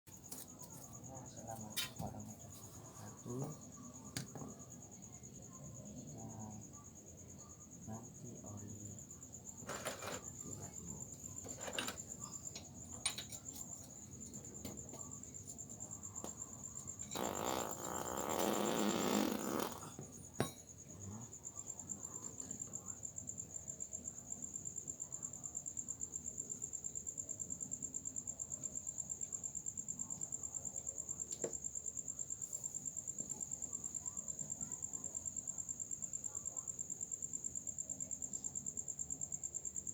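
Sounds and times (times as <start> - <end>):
cricket chirping: 0.1 - 39.9.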